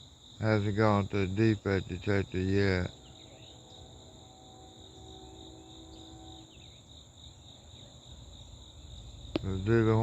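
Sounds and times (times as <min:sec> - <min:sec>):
insects buzzing: 0:00.0 - 0:10.0
distant locomotive horn: 0:02.4 - 0:06.9.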